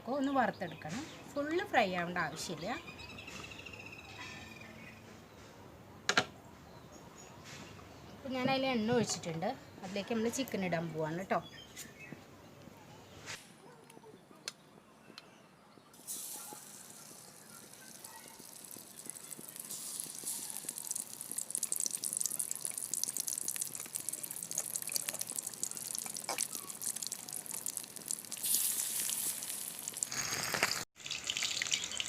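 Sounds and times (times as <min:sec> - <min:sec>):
chicken sizzling in hot oil: 0:16.0 - 0:32.0.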